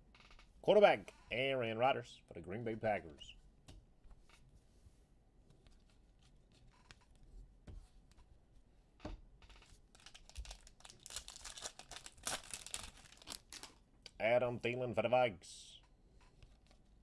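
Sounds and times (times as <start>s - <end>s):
foil wrapper crinkling and tearing: 9.9s - 13.8s.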